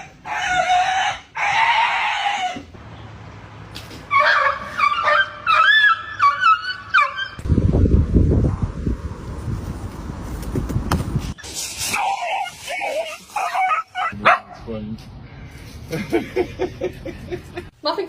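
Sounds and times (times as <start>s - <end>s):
squeaky animal cries: 4.1s - 7.4s.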